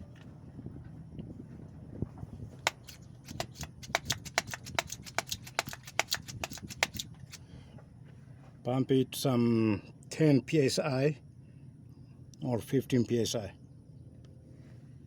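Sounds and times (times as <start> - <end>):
hand air pump clicking: 2.6 - 7.4.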